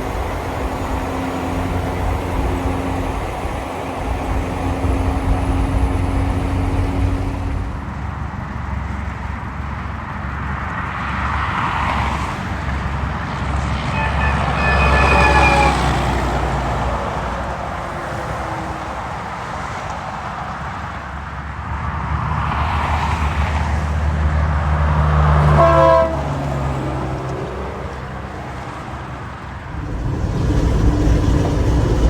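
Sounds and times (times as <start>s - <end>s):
road traffic engines: 0.0s - 32.0s
vehicle passing with whine: 29.3s - 32.0s.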